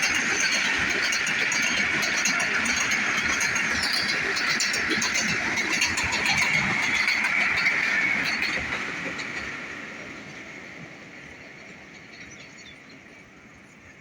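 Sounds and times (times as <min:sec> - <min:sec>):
rapid clicking of wheels: 0:00.0 - 0:09.5
train wheels rolling on rail: 0:00.0 - 0:14.0.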